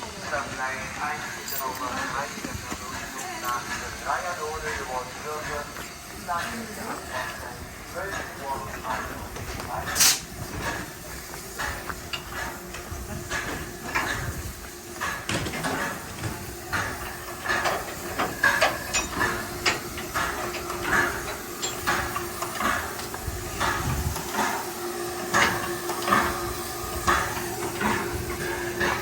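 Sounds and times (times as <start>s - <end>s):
steam locomotive hissing: 0.0s - 29.0s
metallic clanks and knocks: 15.0s - 24.6s.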